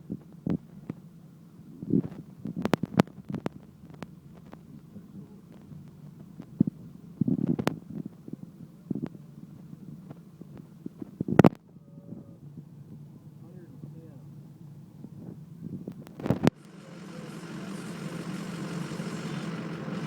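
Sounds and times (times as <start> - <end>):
wind buffeting microphone: 1.8 - 13.4, 14.7 - 16.6.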